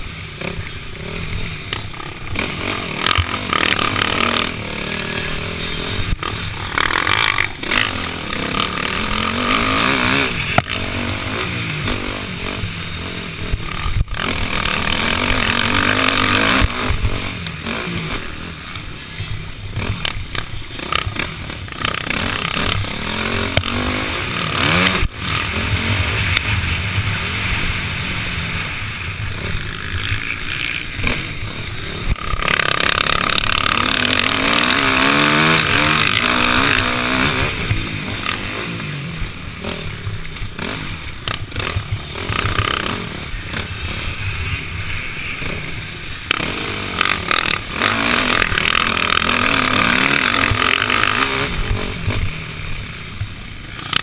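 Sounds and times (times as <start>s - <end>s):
dirt bike engine revving: 0.0s - 54.0s
wind rushing over camera: 21.2s - 54.0s.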